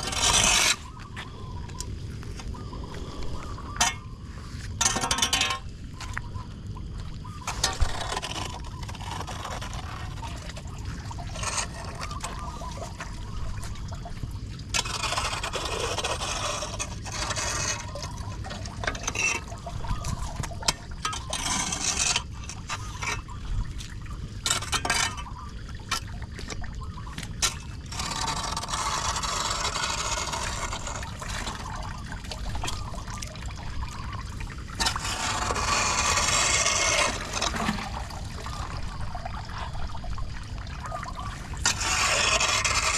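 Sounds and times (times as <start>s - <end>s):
debris scraping against grate: 0.0s - 1.0s, 4.7s - 5.7s, 27.4s - 31.7s, 34.8s - 38.6s, 41.6s - 42.9s
water gurgling down storm drain: 0.0s - 42.9s.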